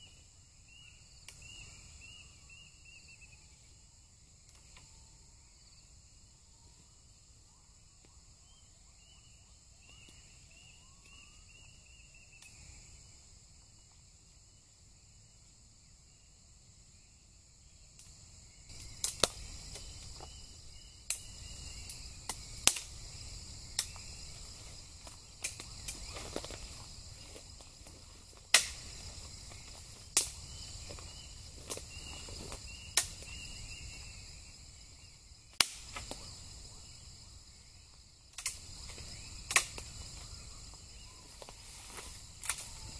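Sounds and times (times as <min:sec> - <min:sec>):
insect chirps: 0:00.0 - 0:42.9
insects buzzing: 0:00.0 - 0:42.9
crackling with sharp pops: 0:17.9 - 0:20.3, 0:21.0 - 0:23.0, 0:23.7 - 0:33.4, 0:35.5 - 0:36.4, 0:38.3 - 0:40.3, 0:41.4 - 0:42.8.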